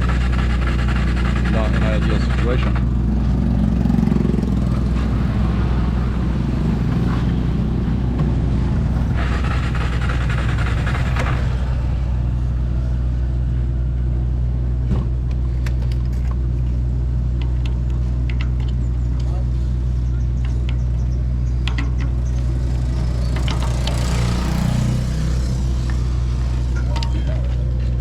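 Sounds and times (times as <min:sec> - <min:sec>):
motorbike engine drone: 0:00.0 - 0:28.0.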